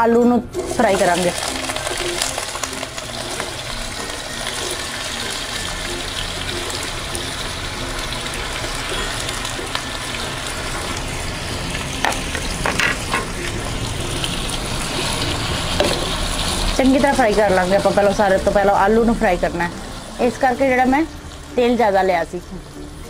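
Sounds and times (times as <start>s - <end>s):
potatoes sizzling in oil: 0.5s - 23.0s.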